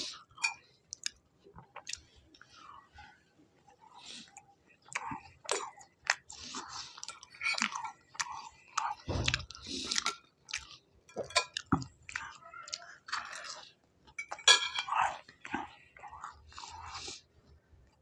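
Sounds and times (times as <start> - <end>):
man chewing: 0.9 - 2.5, 4.2 - 13.7.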